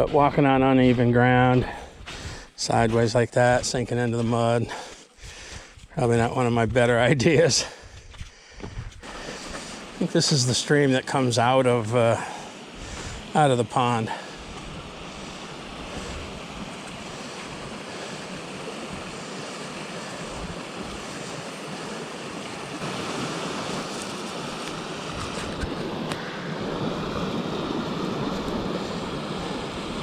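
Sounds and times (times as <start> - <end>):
stream water rushing: 9.0 - 30.0.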